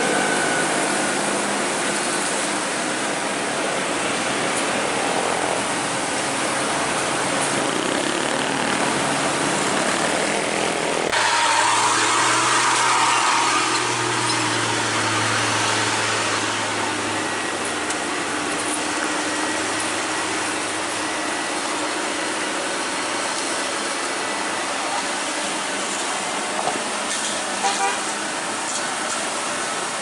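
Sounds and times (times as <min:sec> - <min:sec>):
steady rushing noise: 0:00.0 - 0:11.9
vehicle engine humming: 0:00.0 - 0:30.0.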